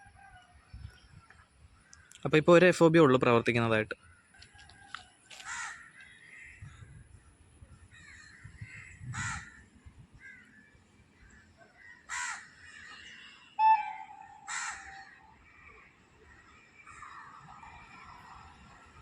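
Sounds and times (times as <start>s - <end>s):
crows cawing: 5.3s - 6.4s, 7.9s - 10.6s, 11.2s - 17.2s
loud steady tone: 13.6s - 15.2s.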